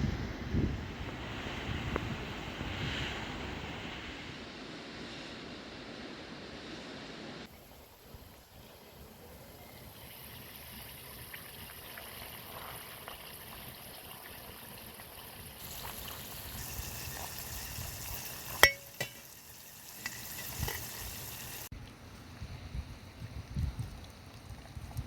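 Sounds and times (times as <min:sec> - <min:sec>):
food sizzling in a pan: 0:15.6 - 0:21.7.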